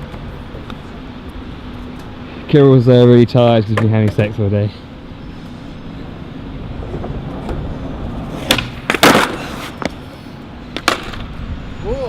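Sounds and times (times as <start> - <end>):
skateboard wheels rolling on wet pavement: 6.4 - 11.4
skateboard clattering impact: 6.8 - 10.1, 10.7 - 11.3
skateboard cracking: 6.8 - 11.3.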